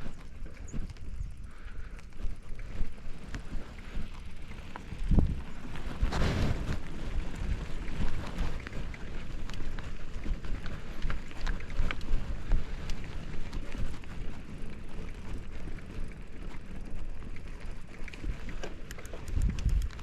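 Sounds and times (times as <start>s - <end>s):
bike clicks and rattles: 0.0s - 20.0s
wind buffeting microphone: 0.0s - 20.0s
tyre noise on dirt: 2.2s - 20.0s.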